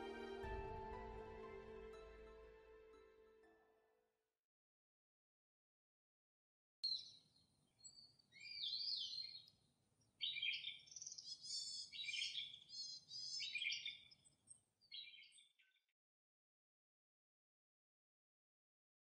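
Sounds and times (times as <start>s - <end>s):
songbird chirping and warbling: 6.8s - 15.8s.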